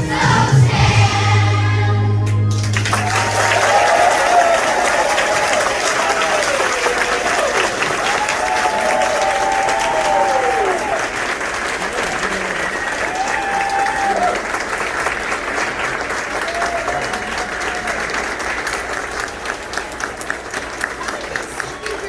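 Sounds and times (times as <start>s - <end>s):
audience applauding: 2.5s - 22.0s.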